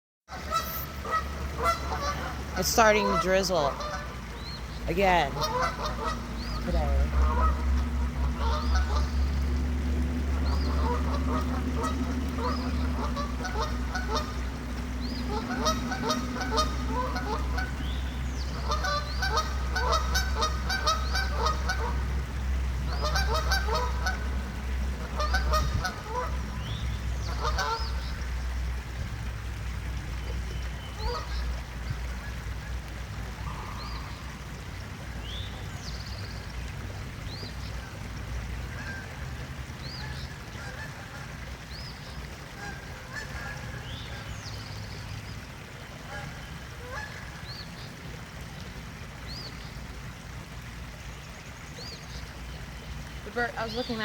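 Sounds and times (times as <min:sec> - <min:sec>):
geese honking: 0:00.3 - 0:09.4, 0:10.3 - 0:14.5, 0:15.2 - 0:17.8, 0:18.5 - 0:22.0, 0:22.9 - 0:24.3, 0:25.0 - 0:26.4, 0:27.2 - 0:28.0, 0:42.6 - 0:44.2, 0:46.1 - 0:47.4.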